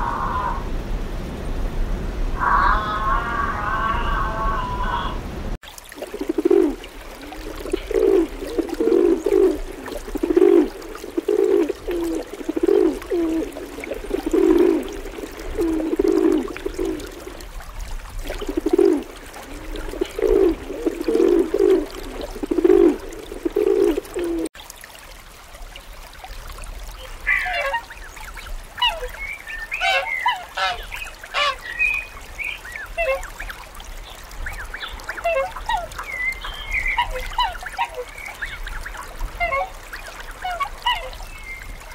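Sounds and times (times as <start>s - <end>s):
pigeon cooing: 6.1s - 17.4s, 18.3s - 24.5s
waterfowl honking calls: 27.2s - 27.9s, 29.7s - 31.7s, 39.4s - 41.2s.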